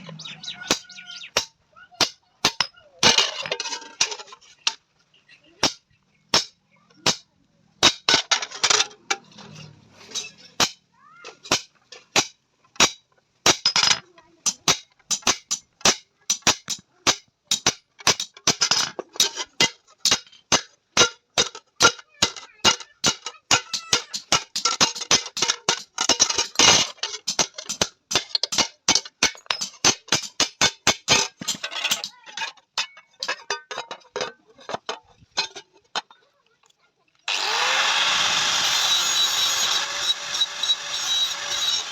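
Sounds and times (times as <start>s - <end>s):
hammer striking iron plate: 10.6s - 10.8s, 11.5s - 13.8s, 14.5s - 18.6s, 19.6s - 32.1s.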